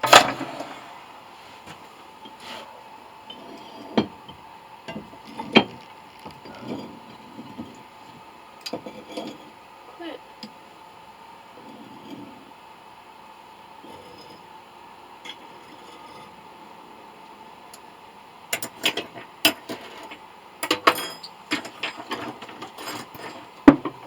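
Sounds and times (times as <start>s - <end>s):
faint steady hum: 0.0s - 24.0s
hard objects clicking and knocking: 3.9s - 7.8s, 18.6s - 24.0s.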